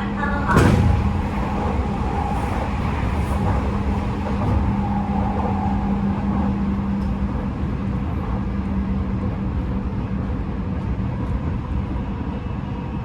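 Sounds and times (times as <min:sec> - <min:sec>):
electric train motor hum: 0:00.0 - 0:10.1
wheel-on-rail rumble: 0:00.0 - 0:12.4.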